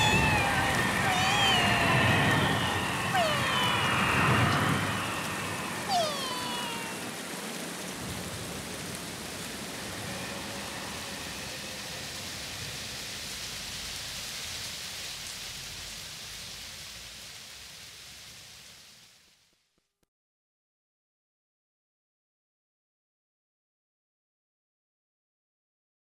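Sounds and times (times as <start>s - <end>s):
rain hiss: 0.0s - 19.8s.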